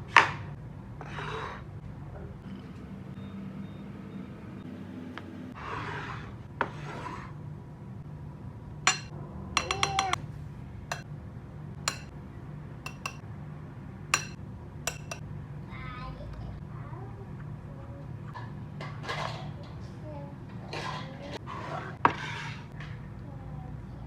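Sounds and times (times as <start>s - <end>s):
metal clinking against dish: 8.9s - 10.2s, 11.9s - 12.1s, 12.9s - 13.2s, 14.2s - 15.2s
utensil scraping: 8.9s - 10.2s, 11.9s - 12.1s, 12.9s - 13.2s, 14.2s - 15.2s.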